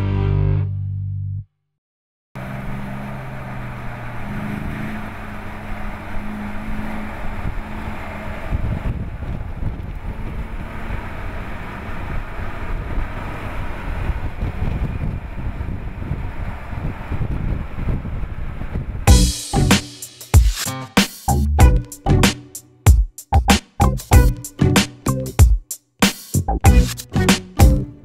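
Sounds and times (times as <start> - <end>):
wind buffeting microphone: 7.1 - 19.1
car engine running: 19.1 - 19.9.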